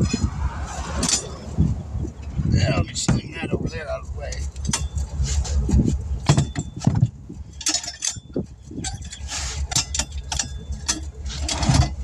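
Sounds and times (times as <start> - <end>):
low steady rumble: 0.0 - 12.0
metal tools clinking: 3.7 - 5.2, 6.2 - 12.0.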